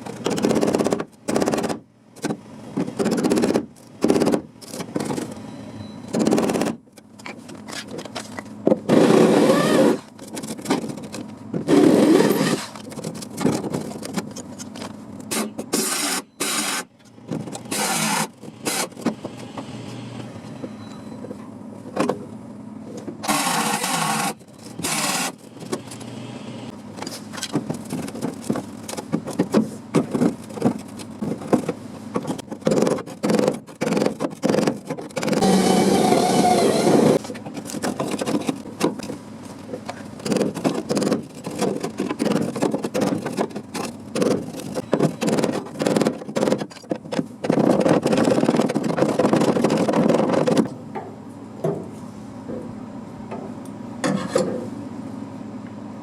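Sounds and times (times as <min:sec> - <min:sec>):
metal scraping or grinding: 0:11.7 - 0:12.9.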